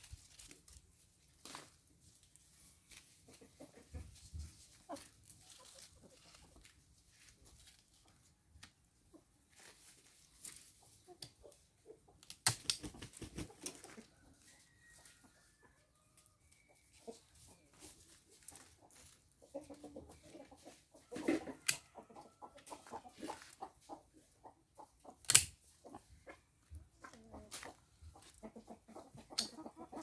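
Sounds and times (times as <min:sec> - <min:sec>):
chickens clucking: 0:02.4 - 0:30.0
sharp clicks and snaps: 0:12.2 - 0:12.9, 0:25.3 - 0:25.5.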